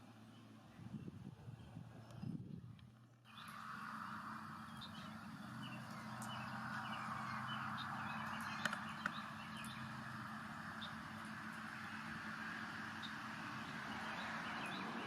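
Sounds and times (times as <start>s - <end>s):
small birds chirping: 0.0s - 15.0s
sharp clicks: 8.3s - 9.8s.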